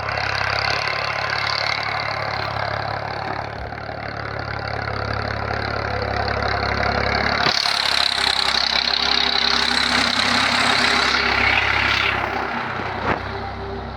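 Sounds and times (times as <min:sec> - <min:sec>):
tractor engine running: 0:00.0 - 0:13.9
harsh bright mechanical noise: 0:07.4 - 0:13.9.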